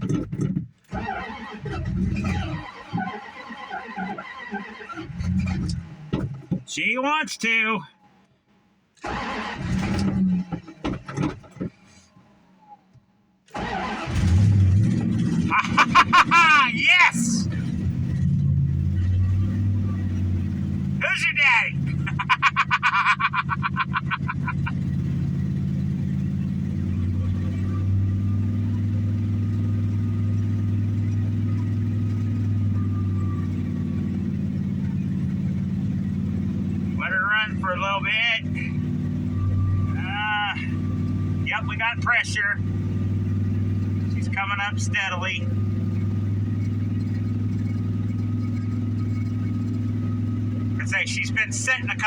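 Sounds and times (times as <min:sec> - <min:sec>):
engine cranking and sputtering: 0:00.0 - 0:06.7, 0:09.0 - 0:12.7, 0:13.4 - 0:52.0
engine running: 0:13.5 - 0:52.0.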